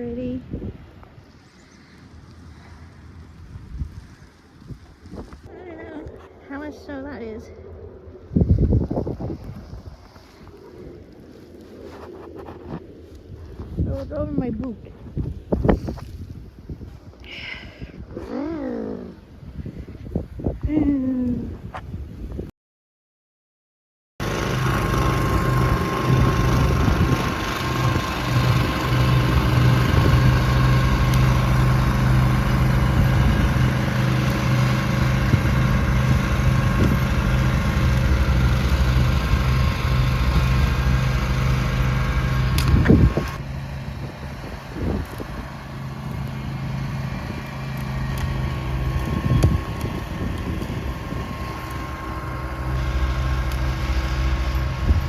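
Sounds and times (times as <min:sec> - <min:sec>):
snowblower engine running: 0:24.2 - 0:55.0.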